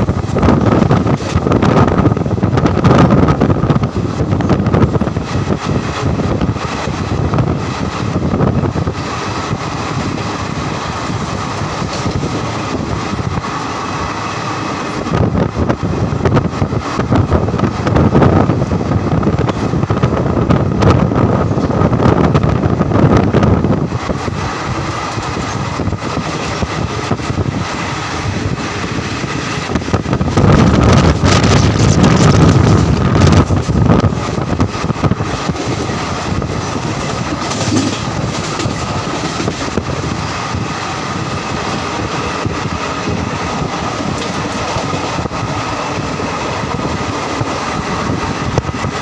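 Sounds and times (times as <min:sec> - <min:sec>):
electric locomotive passing: 0:00.0 - 0:49.0
train wheels rumbling on rails: 0:00.0 - 0:49.0
wind buffeting microphone: 0:00.0 - 0:49.0.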